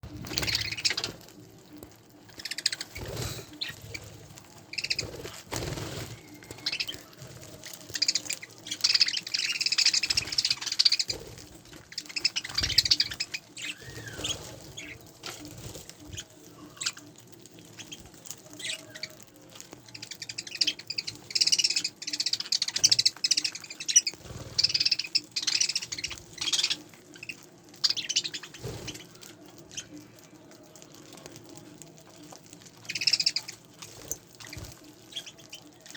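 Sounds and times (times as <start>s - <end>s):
budgerigars chirping: 0.3s - 1.2s, 8.0s - 11.2s, 11.9s - 15.0s, 20.1s - 28.7s, 32.9s - 33.6s.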